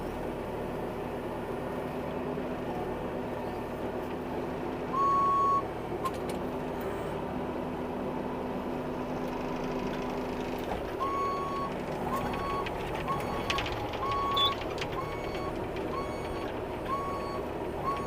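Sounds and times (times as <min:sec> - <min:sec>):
diesel engine running: 0:00.0 - 0:18.0
travel alarm beeps: 0:05.0 - 0:05.6, 0:11.0 - 0:18.0.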